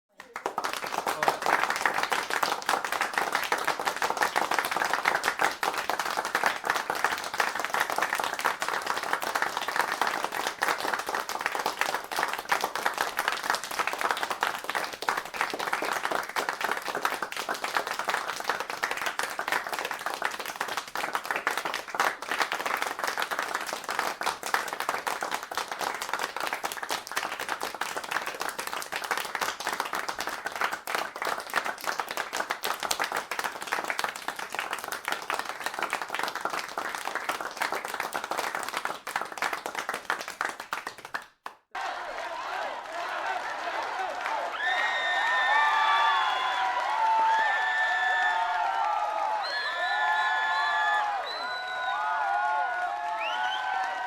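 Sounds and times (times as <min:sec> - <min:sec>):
crowd applauding: 0:00.1 - 0:54.0.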